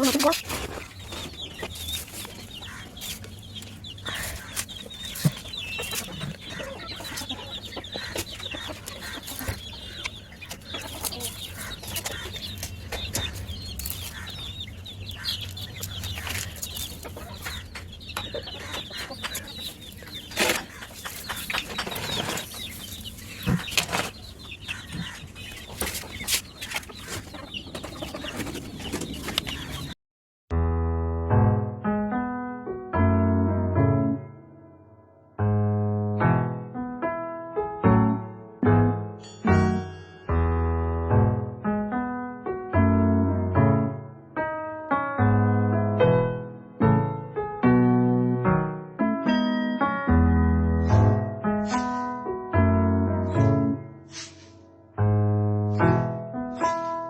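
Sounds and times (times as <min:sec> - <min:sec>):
hens clucking: 0:00.0 - 0:30.0.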